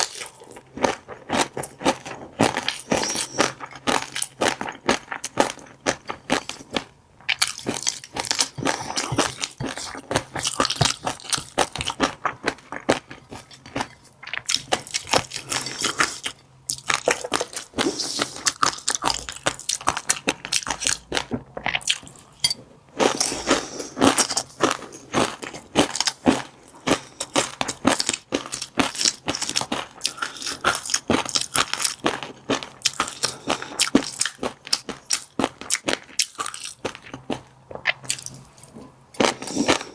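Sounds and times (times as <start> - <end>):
chewing crackling fish eggs: 0.0 - 22.2, 23.0 - 39.9.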